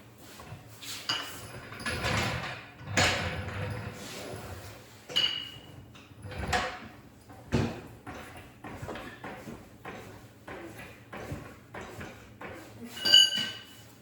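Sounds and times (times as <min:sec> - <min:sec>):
metal tools knocking and clinking: 0:13.0 - 0:13.7
high metallic ring: 0:13.0 - 0:13.8.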